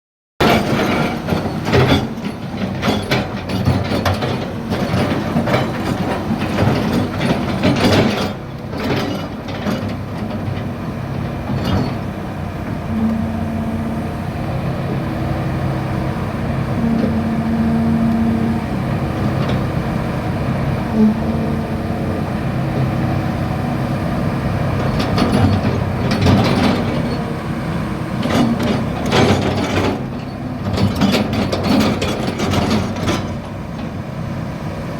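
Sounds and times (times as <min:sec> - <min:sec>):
metallic clanks and rattles: 0:00.4 - 0:12.1, 0:24.8 - 0:27.3, 0:28.2 - 0:33.6
excavator diesel engine: 0:00.4 - 0:34.9.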